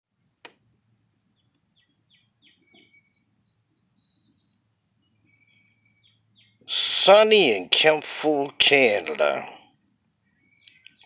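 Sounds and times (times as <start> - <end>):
faint songbird singing: 1.2 - 6.7, 9.7 - 11.0.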